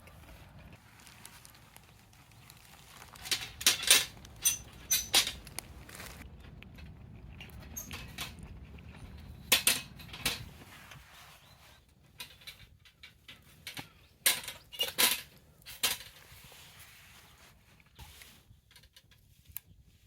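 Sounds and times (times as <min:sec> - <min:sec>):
camp cookware clinking: 0:00.0 - 0:10.6.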